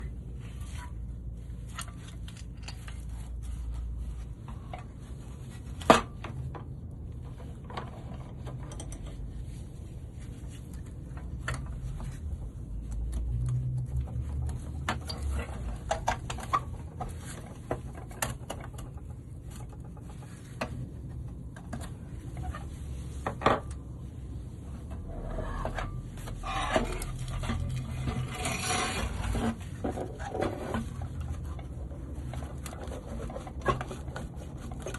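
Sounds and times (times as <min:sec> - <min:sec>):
low steady rumble: 0:00.0 - 0:34.9
hand tools scraping and clinking: 0:01.6 - 0:03.9, 0:24.9 - 0:34.9.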